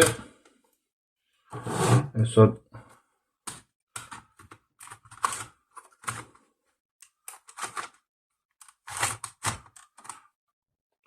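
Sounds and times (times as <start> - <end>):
laptop parts clicking and knocking: 3.5 - 6.4, 8.6 - 10.3.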